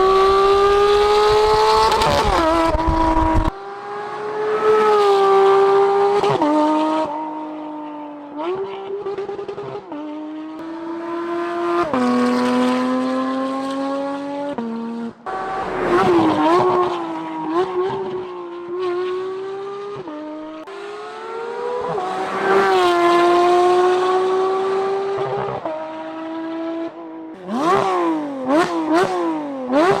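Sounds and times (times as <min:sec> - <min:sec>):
engine rev blips: 0:15.2 - 0:19.4.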